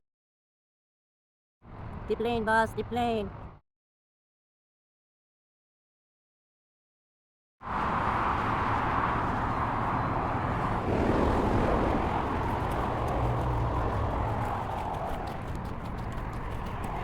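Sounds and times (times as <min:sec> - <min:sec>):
jet airplane roaring overhead: 0:07.6 - 0:17.0
faint footsteps: 0:11.4 - 0:17.0.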